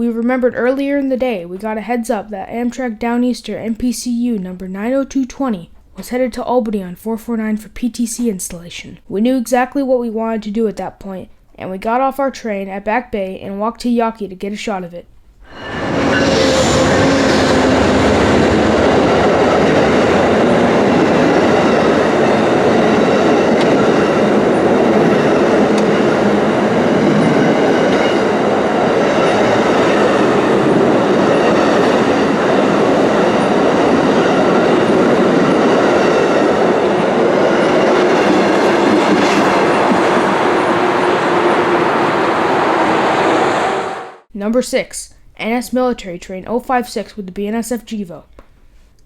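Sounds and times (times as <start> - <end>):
train wheels on rails: 15.5 - 44.2.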